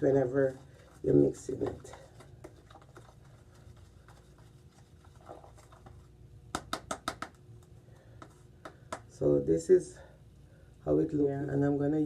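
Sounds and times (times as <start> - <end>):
toothbrush scraping plastic container: 0.2 - 6.1.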